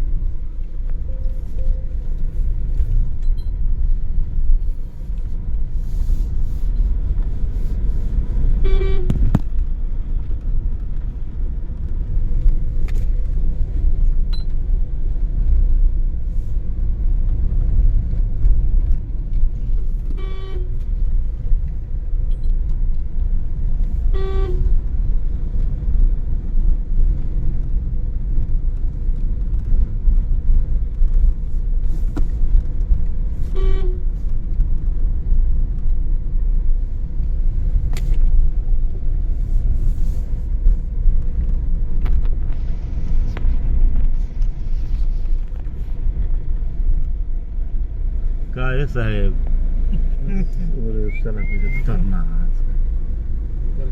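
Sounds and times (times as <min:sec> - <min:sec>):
car road rumble: 0:00.0 - 0:53.9
vehicle horn toots: 0:08.6 - 0:09.3, 0:20.2 - 0:20.8, 0:24.1 - 0:24.7, 0:33.5 - 0:34.0.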